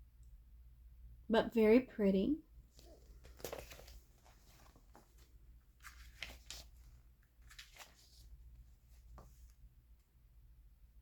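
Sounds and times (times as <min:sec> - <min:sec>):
magazine pages rustling and turning: 0:02.7 - 0:09.7.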